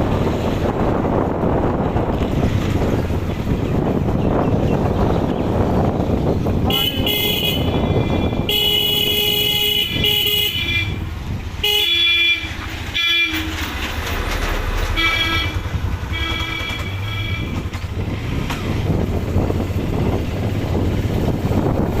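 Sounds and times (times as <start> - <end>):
wind buffeting microphone: 0.0 - 22.0
vehicle horns honking: 6.6 - 13.8, 14.8 - 17.8.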